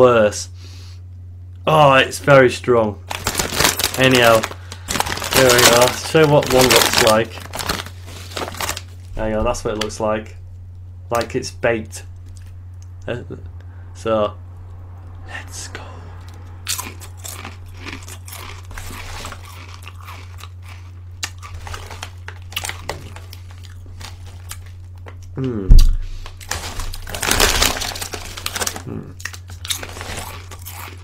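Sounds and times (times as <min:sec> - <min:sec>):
low electrical hum: 0:00.0 - 0:31.0
chewing crunchy snack: 0:03.1 - 0:08.9, 0:16.2 - 0:25.6, 0:26.3 - 0:31.0
short falling vocal sound: 0:25.4 - 0:26.0.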